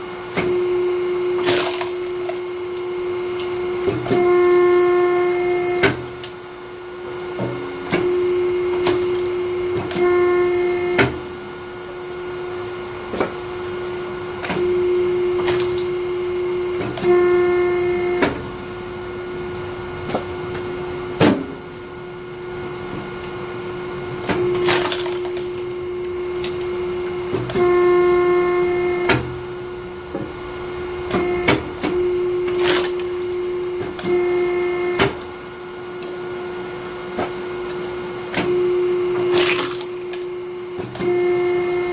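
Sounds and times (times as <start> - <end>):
log splitter humming: 0.0 - 41.9
wood splitting cracks: 24.6 - 25.8, 39.3 - 40.2.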